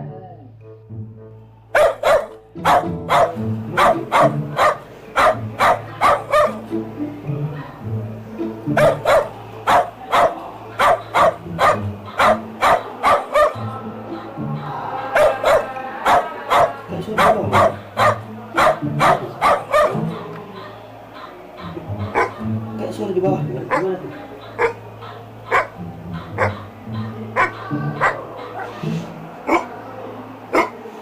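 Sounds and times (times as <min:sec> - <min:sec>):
background music: 0:00.0 - 0:31.0
recorded dog barking from phone: 0:01.8 - 0:06.7, 0:08.7 - 0:13.8, 0:15.1 - 0:22.5, 0:23.7 - 0:28.9, 0:29.5 - 0:29.7, 0:30.5 - 0:30.8.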